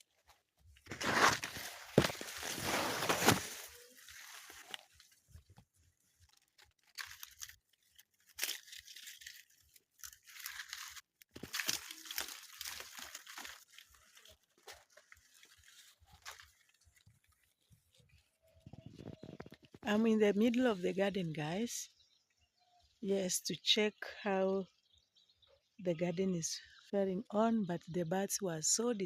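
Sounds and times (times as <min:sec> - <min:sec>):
maize leaves rustling: 0:00.0 - 0:21.2
footsteps through maize field: 0:00.1 - 0:18.9.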